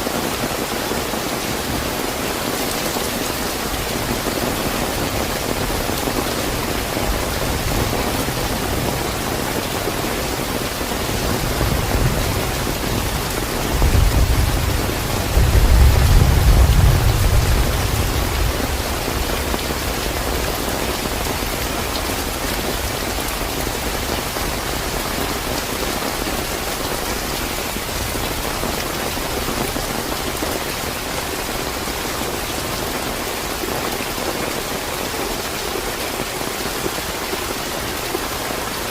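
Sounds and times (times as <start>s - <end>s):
heavy rain: 0.0s - 38.9s
thunder rumble: 3.8s - 22.9s.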